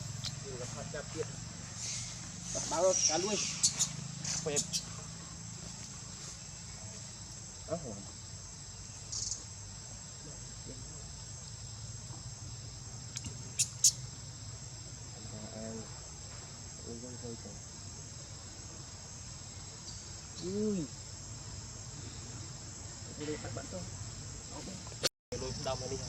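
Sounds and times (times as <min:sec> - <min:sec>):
high-pitched insect chorus: 0:00.0 - 0:26.0
rising-and-falling calls: 0:01.8 - 0:04.9.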